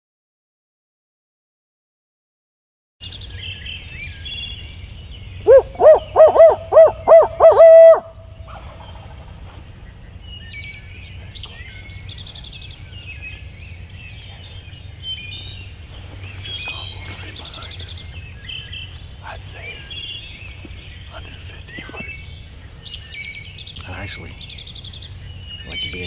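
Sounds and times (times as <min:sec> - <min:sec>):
faint songbirds chirping: 0:03.0 - 0:26.0
owl hooting: 0:05.4 - 0:09.2.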